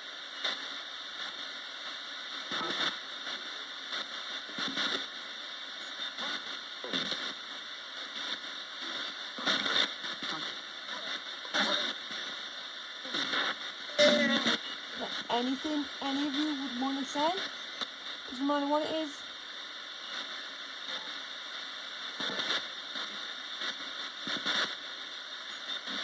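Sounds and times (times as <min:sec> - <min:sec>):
radio static hiss: 0:00.0 - 0:26.0
chopped snatches of broadcast: 0:13.1 - 0:19.2, 0:22.1 - 0:24.8.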